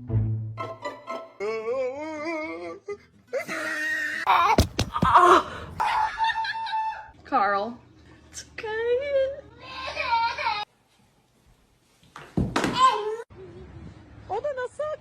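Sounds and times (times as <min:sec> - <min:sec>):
sharp thuds: 0:04.3 - 0:05.4.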